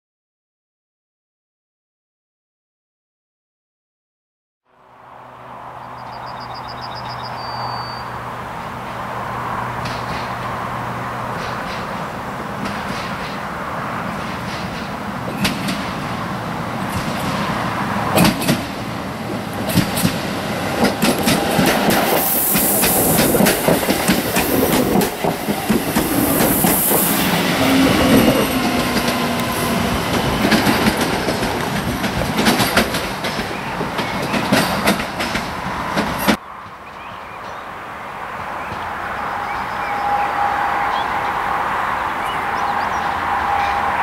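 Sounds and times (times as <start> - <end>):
electric train rumble and hiss: 8.1 - 36.4
wheels clacking over rail joints: 8.3 - 37.6.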